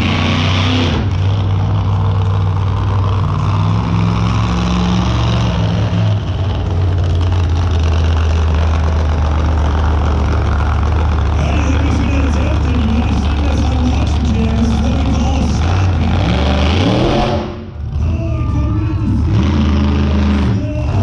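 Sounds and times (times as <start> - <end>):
loud vehicle engine revving: 0.0 - 21.0.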